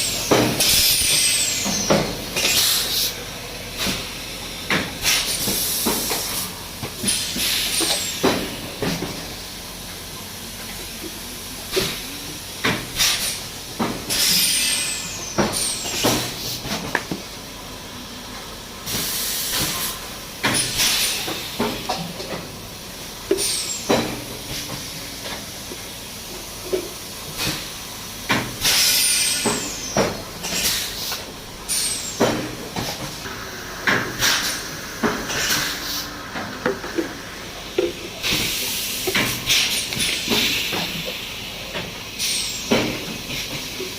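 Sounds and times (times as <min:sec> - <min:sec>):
compressed air hissing: 0:00.0 - 0:08.8, 0:14.1 - 0:16.7, 0:18.8 - 0:22.0, 0:28.6 - 0:43.9.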